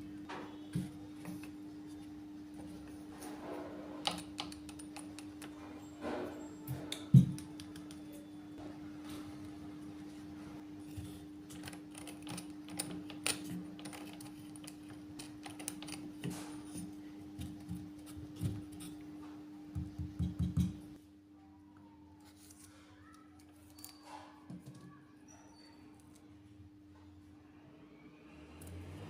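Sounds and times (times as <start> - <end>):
hard objects clicking and tapping: 4.0 - 5.6, 11.5 - 18.9, 19.8 - 21.0.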